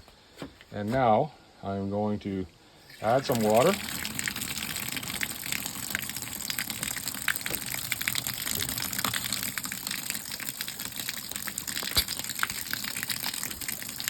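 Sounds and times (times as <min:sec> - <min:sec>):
water pouring into a tub: 0:02.9 - 0:14.0.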